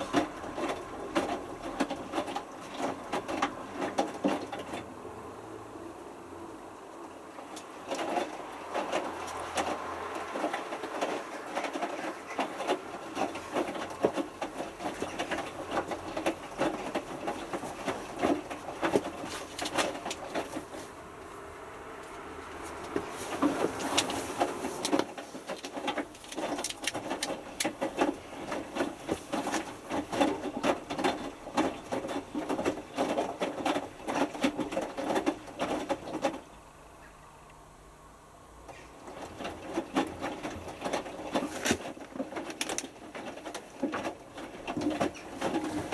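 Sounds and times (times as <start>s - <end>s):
washing machine drum tumbling: 7.2s - 20.9s, 22.4s - 36.5s.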